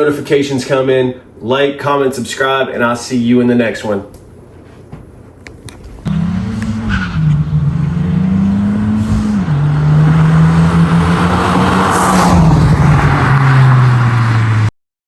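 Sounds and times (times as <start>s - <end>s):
car exhaust drone: 5.2s - 14.7s.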